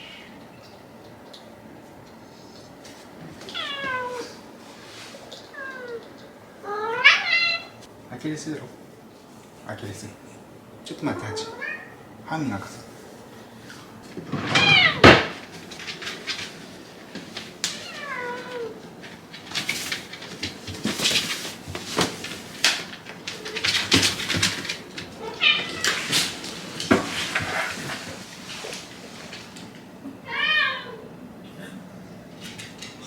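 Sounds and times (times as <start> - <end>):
scraping and clicking noises: 13.7 - 29.9, 32.3 - 33.0.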